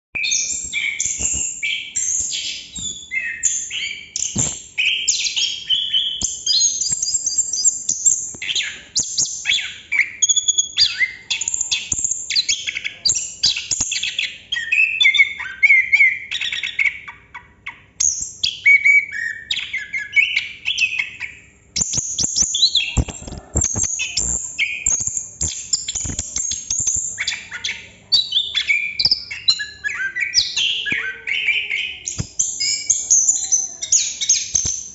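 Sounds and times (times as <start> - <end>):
thrush singing whistled phrases: 28.4 - 34.9.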